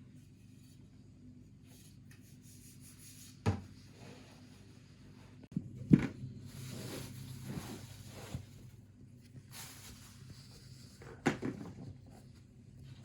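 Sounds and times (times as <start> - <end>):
rubbing and brushing: 6.5 - 8.7.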